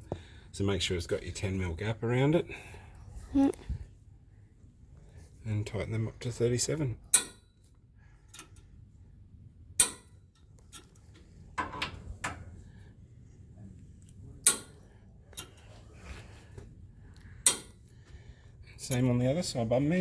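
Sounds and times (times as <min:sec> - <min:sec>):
metallic clicks of hand tools: 0:07.1 - 0:07.4, 0:09.8 - 0:11.0, 0:14.4 - 0:14.8, 0:17.5 - 0:17.8.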